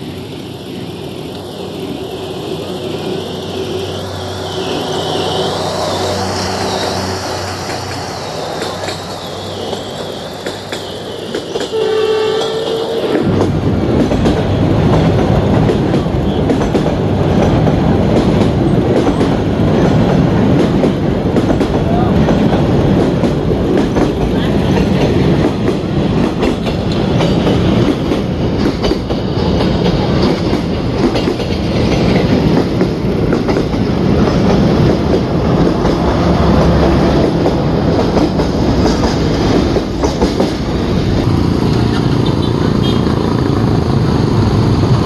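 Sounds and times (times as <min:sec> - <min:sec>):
train wheels clattering over rail joints: 0:00.0 - 0:42.0.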